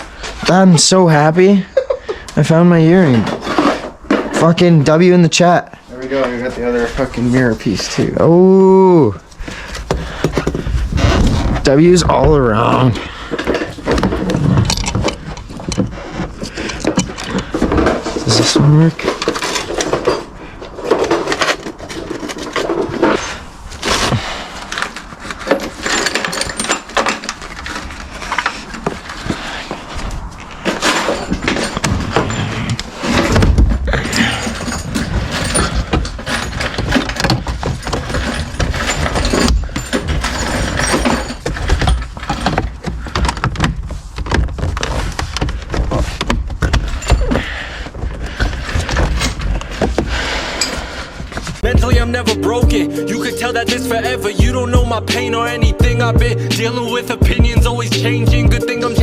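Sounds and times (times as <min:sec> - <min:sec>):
car parts knocking and clattering: 0:00.0 - 0:08.2, 0:09.2 - 0:52.8, 0:53.9 - 0:59.0
rap music bass beat: 0:51.6 - 0:59.0.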